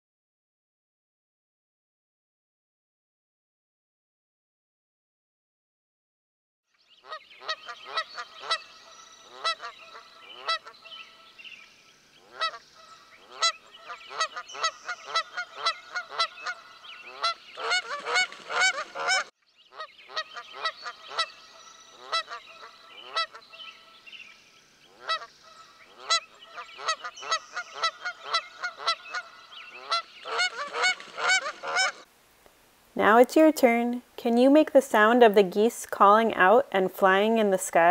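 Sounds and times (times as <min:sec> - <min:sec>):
geese honking: 0:07.0 - 0:11.4, 0:12.2 - 0:24.0, 0:24.9 - 0:32.1.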